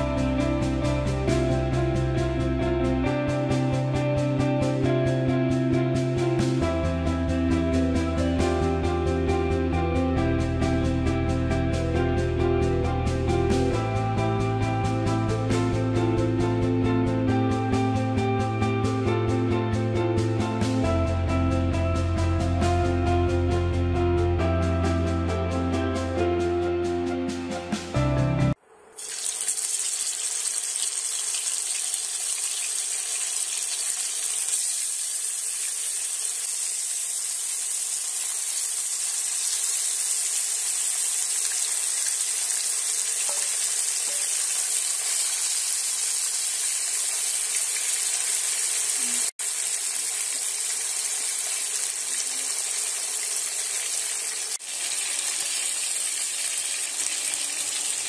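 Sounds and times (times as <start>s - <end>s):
fish sizzling in hot oil: 28.9s - 58.0s.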